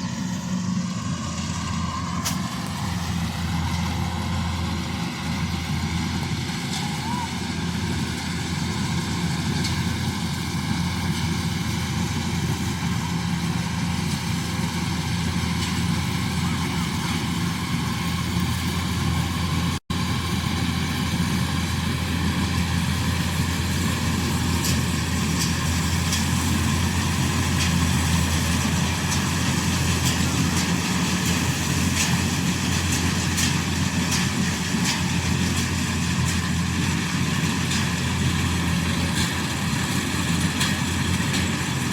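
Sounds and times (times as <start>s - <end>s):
harvester engine droning: 0.0s - 41.9s.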